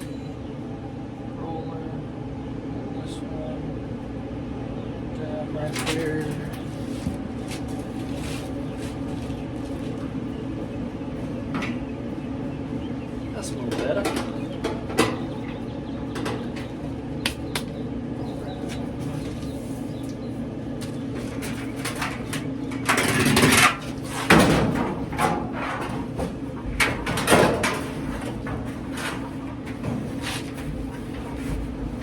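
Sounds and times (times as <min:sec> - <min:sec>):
steady low hum: 0:00.0 - 0:32.0
dryer parts clicking and knocking: 0:05.6 - 0:32.0.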